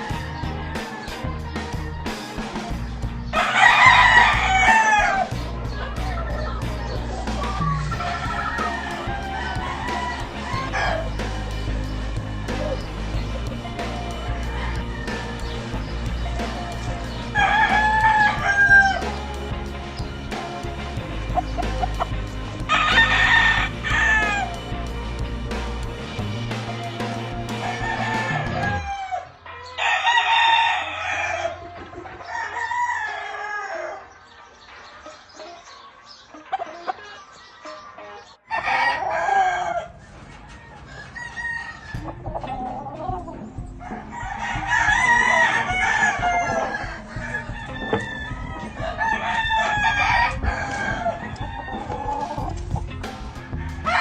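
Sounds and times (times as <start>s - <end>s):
rooster crowing: 0.0s - 2.5s, 3.3s - 5.4s, 7.4s - 13.0s, 13.6s - 19.4s, 22.7s - 24.7s, 27.5s - 34.1s, 36.5s - 42.6s, 43.8s - 52.6s, 53.3s - 54.0s
background music: 0.0s - 54.0s.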